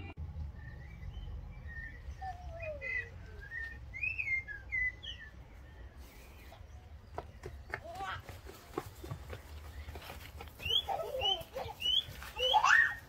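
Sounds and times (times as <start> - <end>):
low steady rumble: 0.0 - 6.0
songbirds chirping and whistling: 0.2 - 13.0.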